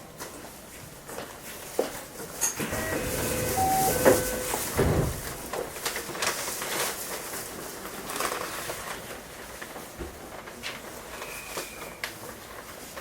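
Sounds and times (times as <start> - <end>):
clicks and knocks in train car: 1.2 - 6.5
brief steady tones: 2.6 - 5.2.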